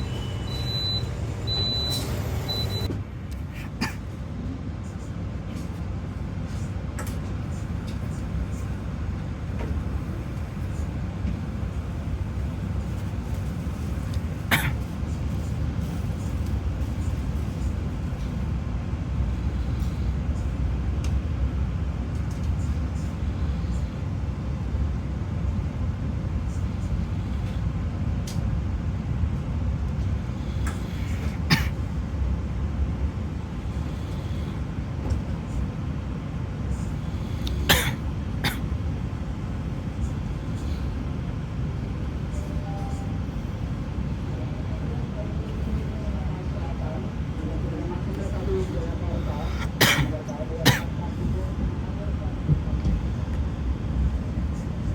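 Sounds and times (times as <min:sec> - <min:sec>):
train rumble inside carriage: 0:00.0 - 0:54.9.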